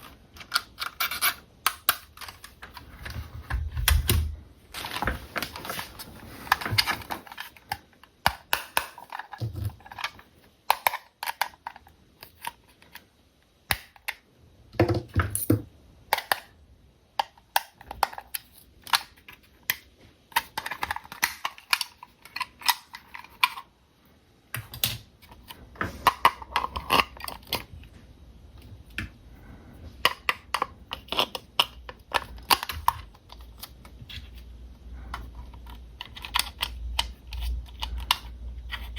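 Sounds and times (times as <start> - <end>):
packaging rustling: 2.2 - 7.9.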